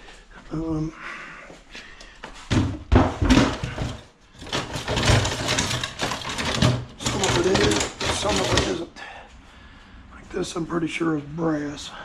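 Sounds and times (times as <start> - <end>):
scrap metal clattering: 2.5 - 8.8.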